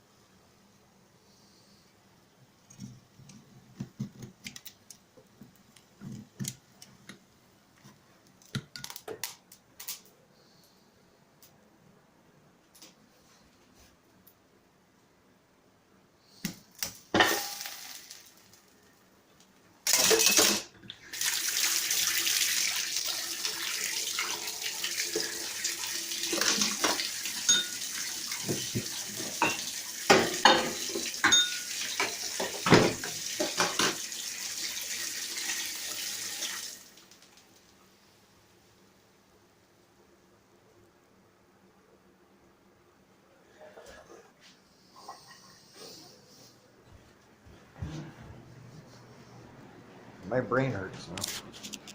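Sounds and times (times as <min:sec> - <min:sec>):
dishes and utensils clinking: 0:17.2 - 0:17.9, 0:19.9 - 0:20.7, 0:26.3 - 0:34.0.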